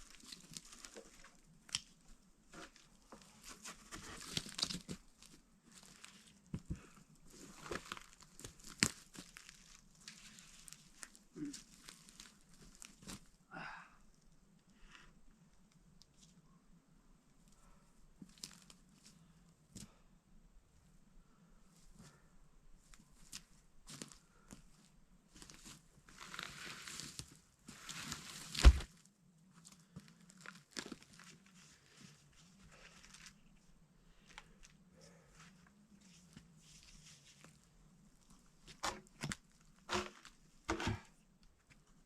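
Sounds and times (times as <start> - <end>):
material rustling and crackling: 23.1 - 29.0, 35.2 - 41.1.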